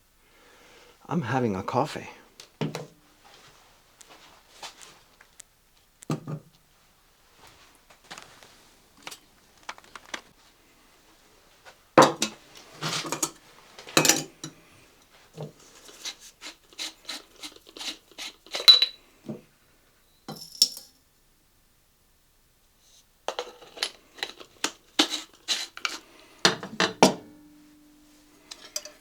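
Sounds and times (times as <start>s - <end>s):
utensils clattering and clinking: 12.1s - 14.6s, 23.3s - 27.2s, 28.4s - 29.0s
kitchenware knock: 26.5s - 27.4s.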